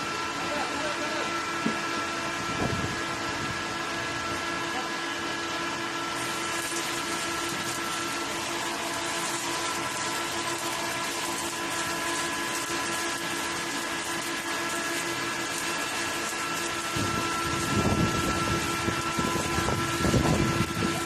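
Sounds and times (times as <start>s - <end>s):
welding arc frying hiss: 6.2s - 21.0s.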